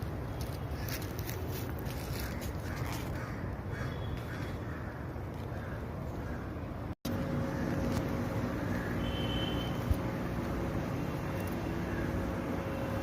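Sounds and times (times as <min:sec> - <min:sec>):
crows cawing: 0:02.1 - 0:06.6, 0:07.4 - 0:07.9, 0:08.5 - 0:09.4, 0:11.8 - 0:12.2
low outdoor rumble: 0:04.4 - 0:13.0
steady hum: 0:07.0 - 0:13.0.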